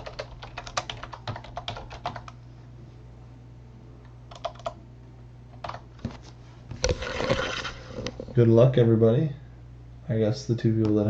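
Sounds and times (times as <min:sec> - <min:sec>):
computer keyboard typing: 0:00.0 - 0:02.4, 0:04.3 - 0:04.8, 0:05.6 - 0:05.8
low electrical hum: 0:00.0 - 0:11.0.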